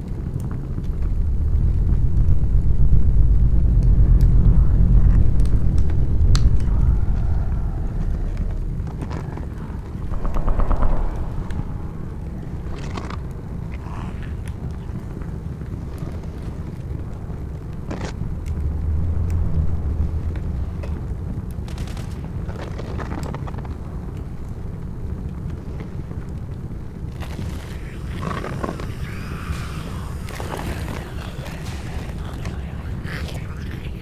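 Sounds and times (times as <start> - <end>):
low rumble: 0.7 - 13.8, 18.2 - 21.7, 27.0 - 34.0.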